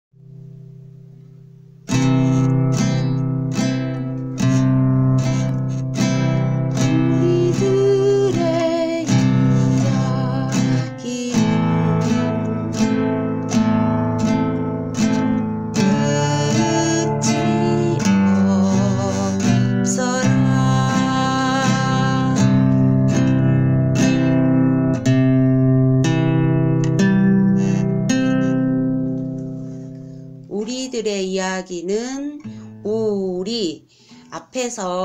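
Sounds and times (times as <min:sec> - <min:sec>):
acoustic guitar strumming: 0:00.2 - 0:34.5
person singing: 0:06.6 - 0:13.3, 0:15.7 - 0:23.6.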